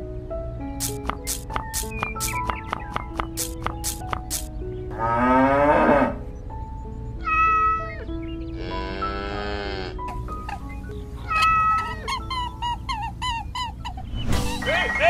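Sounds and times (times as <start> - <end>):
light background music: 0.0 - 15.0
short repeated chirps: 0.8 - 4.5
cow mooing: 4.9 - 6.2, 8.6 - 10.0
meowing calls: 7.2 - 10.6, 11.2 - 13.5.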